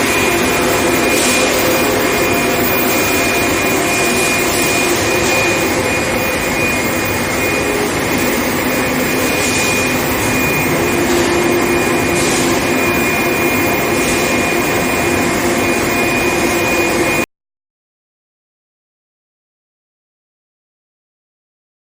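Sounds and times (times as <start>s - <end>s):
high-pitched whine: 0.0s - 17.3s
loud machine hum: 0.0s - 17.3s.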